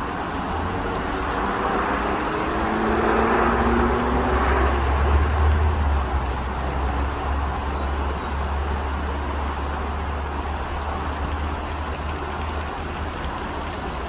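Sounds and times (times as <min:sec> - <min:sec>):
low traffic rumble: 0:00.0 - 0:14.0
vehicle passing by: 0:00.7 - 0:07.1.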